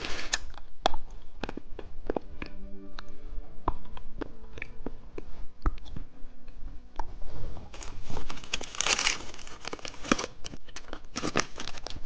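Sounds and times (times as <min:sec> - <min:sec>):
candy clicking and tapping: 0:00.2 - 0:06.1
plastic wrapper crinkling: 0:07.7 - 0:12.0.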